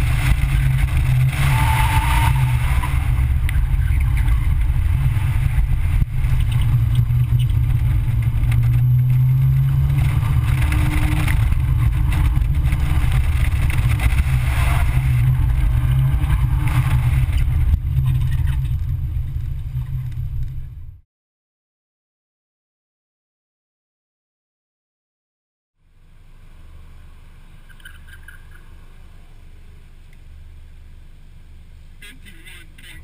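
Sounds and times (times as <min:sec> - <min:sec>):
car engine pulling hard: 0:00.0 - 0:21.0
road and wind noise: 0:00.0 - 0:21.0, 0:25.8 - 0:33.0.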